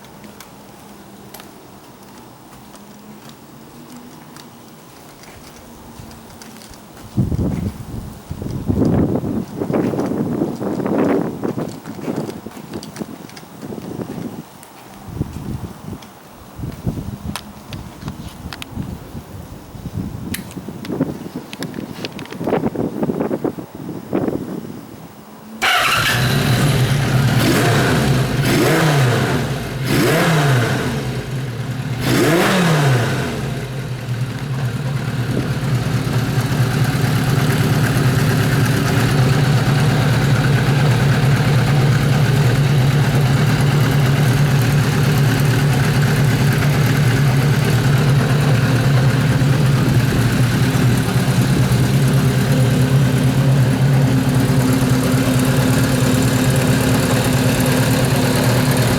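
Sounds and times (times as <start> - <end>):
motorcycle engine revving and idling: 25.6 - 58.9.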